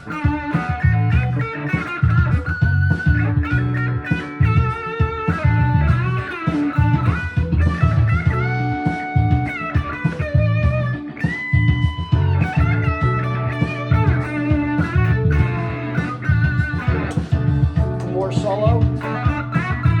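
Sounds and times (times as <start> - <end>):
backing track with bass: 0.0 - 20.0
distorted electric guitar lead: 0.0 - 20.0.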